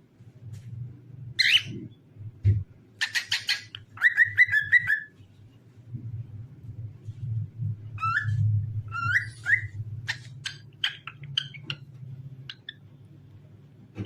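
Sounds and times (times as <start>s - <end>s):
cockatiel whistling: 3.0s - 5.1s, 8.0s - 11.8s.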